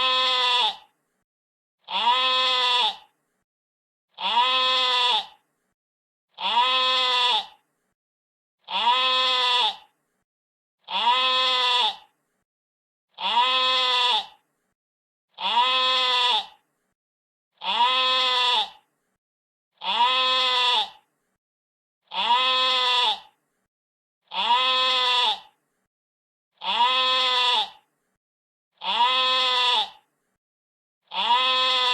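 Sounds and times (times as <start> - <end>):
sheep bleating: 0.0 - 0.9, 1.9 - 3.1, 4.2 - 5.4, 6.4 - 7.6, 8.6 - 9.9, 10.9 - 12.1, 13.2 - 14.4, 15.4 - 16.6, 17.6 - 18.8, 19.8 - 21.0, 22.1 - 23.4, 24.3 - 25.6, 26.6 - 27.8, 28.8 - 30.0, 31.1 - 31.9.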